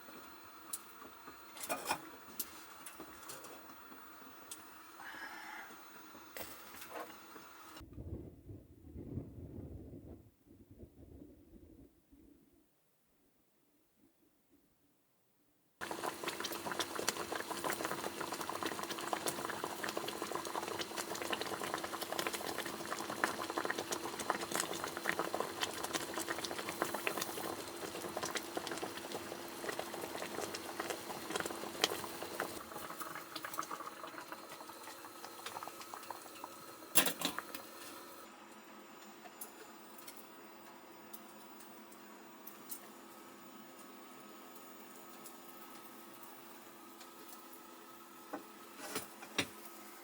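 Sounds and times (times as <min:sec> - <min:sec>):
liquid bubbling on a stove: 0:00.0 - 0:10.2, 0:15.8 - 0:38.3.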